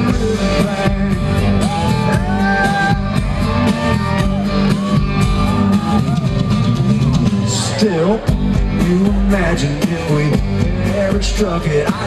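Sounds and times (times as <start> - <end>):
bass: 0.0 - 12.0
drums: 0.0 - 12.0
electric guitar lead with bent notes: 0.0 - 12.0.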